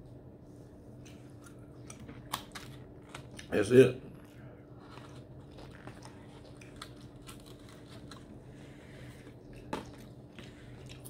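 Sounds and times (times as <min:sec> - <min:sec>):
faint steady hum: 0:00.0 - 0:11.0
people chewing: 0:04.1 - 0:11.0.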